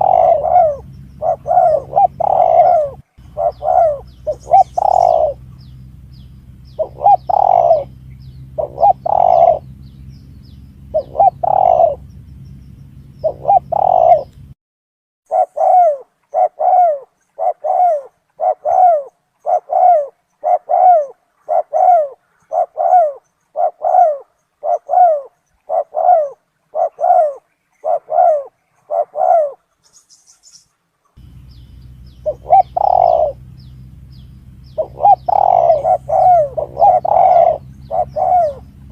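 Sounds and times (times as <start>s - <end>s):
dove cooing: 0.0s - 14.5s, 15.3s - 29.8s, 31.2s - 38.9s
steady low hum: 0.0s - 14.6s, 31.2s - 38.9s.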